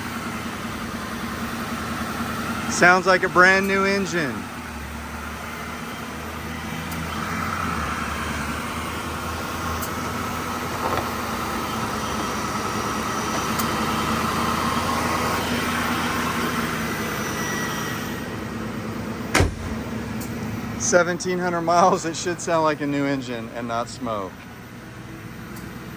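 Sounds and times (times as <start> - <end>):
car engine idling: 0.0 - 25.9
sharp knock: 19.3 - 19.9.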